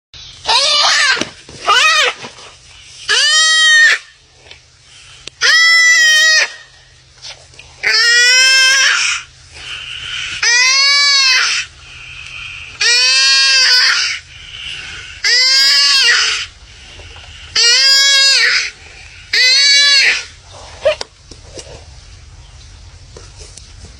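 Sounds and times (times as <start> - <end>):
animal bleating loudly: 0.4 - 2.2, 3.1 - 4.2, 5.4 - 6.7, 7.8 - 9.3, 10.4 - 11.7, 12.8 - 14.2, 15.2 - 16.5, 17.6 - 20.4.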